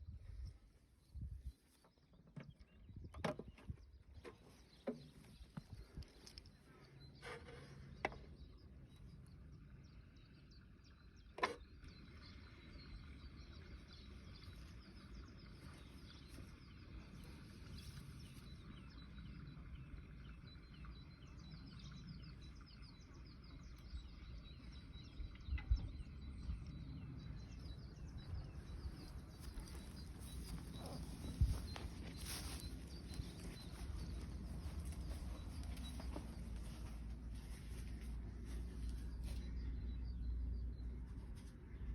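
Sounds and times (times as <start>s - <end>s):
faint birds chirping: 0.0s - 41.9s.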